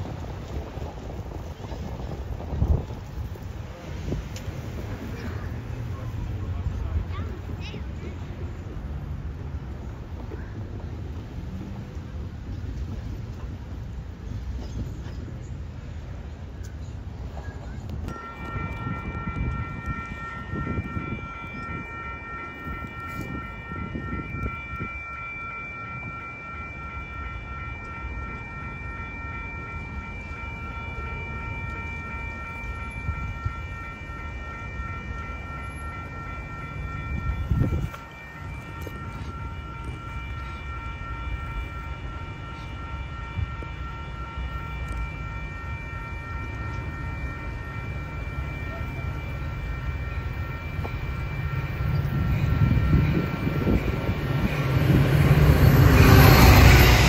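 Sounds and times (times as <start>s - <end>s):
train approaching: 0.0s - 57.0s
high-pitched whining tones: 16.8s - 57.0s.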